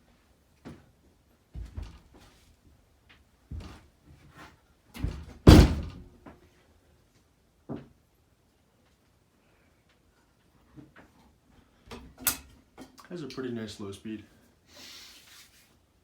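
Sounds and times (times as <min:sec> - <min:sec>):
heavy thud: 0:05.0 - 0:06.1
knocks and thumps: 0:05.0 - 0:06.4.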